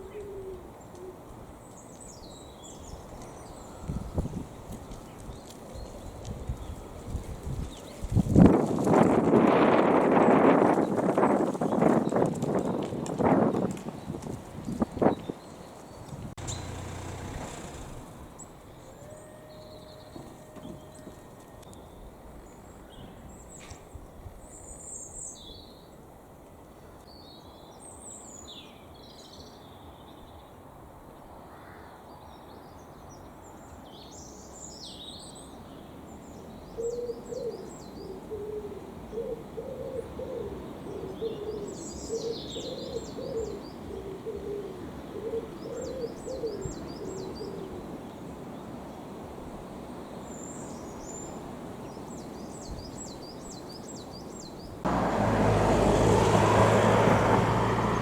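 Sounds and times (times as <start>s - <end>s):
pigeon cooing: 0.0s - 1.2s, 36.8s - 47.7s
small birds chirping: 14.0s - 21.0s.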